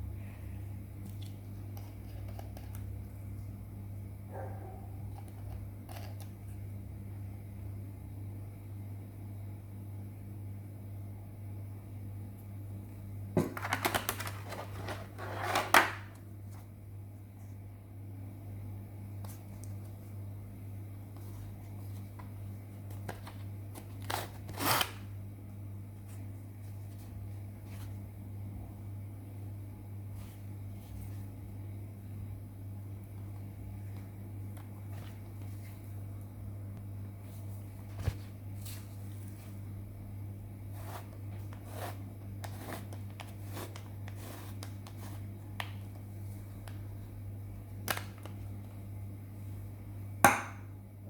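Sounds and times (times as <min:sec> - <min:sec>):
steady low hum: 0:00.0 - 0:51.0
unboxing rustles and clicks: 0:13.5 - 0:16.2.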